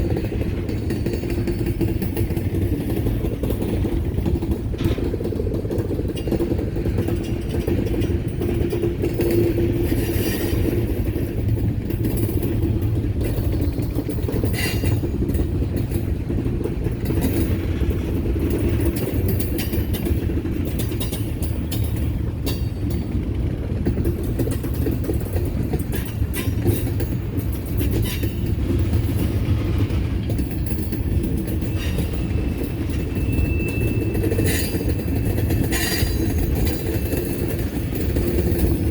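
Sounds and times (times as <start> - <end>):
sharp clicks of rail cars: 0.0 - 38.9
train wheels rumbling on rail: 0.0 - 38.9
high wheel squeal: 31.7 - 36.2.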